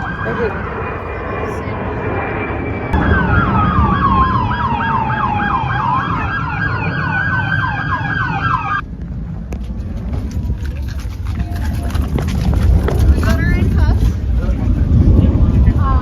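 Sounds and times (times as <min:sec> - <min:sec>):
siren wail: 0:00.0 - 0:08.8
siren yelp: 0:00.0 - 0:08.8.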